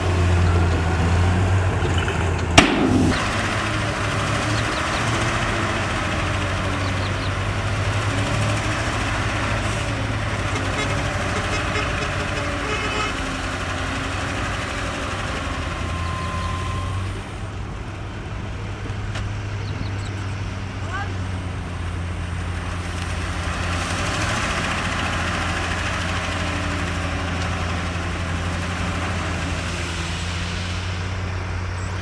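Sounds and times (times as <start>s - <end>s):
heavy diesel machinery engine: 0.0s - 32.0s
dense noisy rush: 2.6s - 7.5s.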